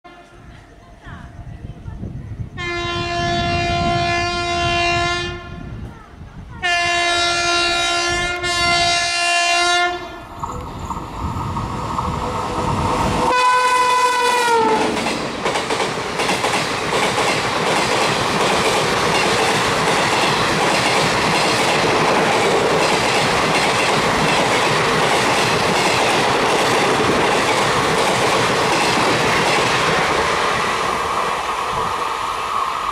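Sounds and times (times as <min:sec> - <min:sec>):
locomotive horn blasts: 0:02.6 - 0:05.7, 0:06.6 - 0:10.3, 0:13.3 - 0:14.9
train coaches clickety-clack: 0:10.3 - 0:32.1.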